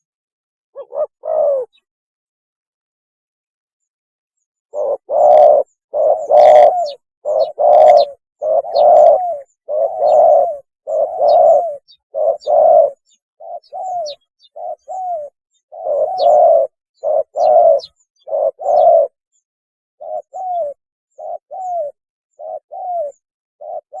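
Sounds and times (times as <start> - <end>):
dove cooing: 0.8 - 1.8, 4.7 - 19.2, 20.0 - 24.0.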